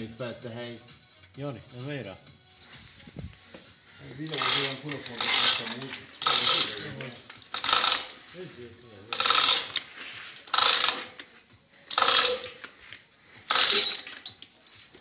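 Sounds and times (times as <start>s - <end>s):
ratchet rasping: 4.2s - 8.3s, 9.1s - 15.0s.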